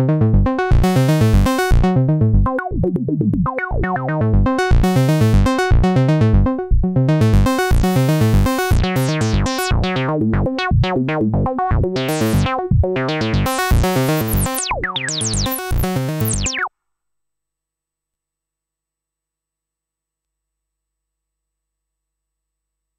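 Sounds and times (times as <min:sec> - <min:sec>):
synthesizer plucky note sequence: 0:00.0 - 0:16.7.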